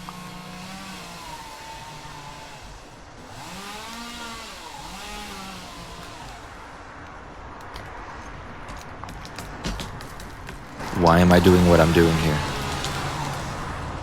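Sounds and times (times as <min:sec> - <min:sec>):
chainsaw engine revving: 0:00.0 - 0:06.8, 0:10.8 - 0:14.0.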